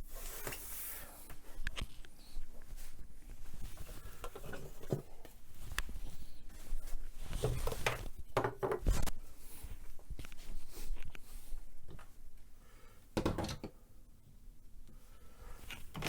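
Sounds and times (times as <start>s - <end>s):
objects knocking and clicking: 7.4s - 9.0s, 13.2s - 13.8s.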